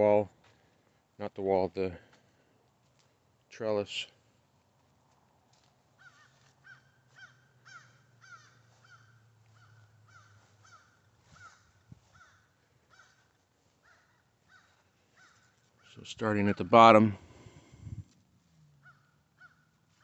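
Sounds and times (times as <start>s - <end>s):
distant bird calls: 5.7s - 20.0s
low steady hum: 16.2s - 20.0s.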